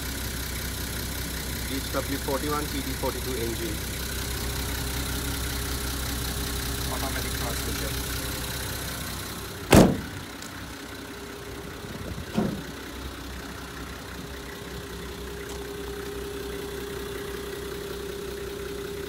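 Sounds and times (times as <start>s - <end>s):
diesel engine idling: 0.0s - 19.0s
loud sharp thump: 9.7s - 10.2s, 12.3s - 12.7s.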